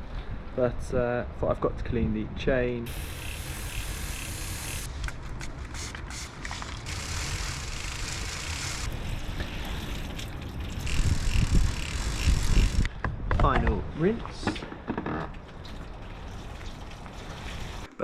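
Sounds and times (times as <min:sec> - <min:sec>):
water spraying onto bicycle chain: 0:02.9 - 0:04.9, 0:05.8 - 0:12.9, 0:16.2 - 0:17.9.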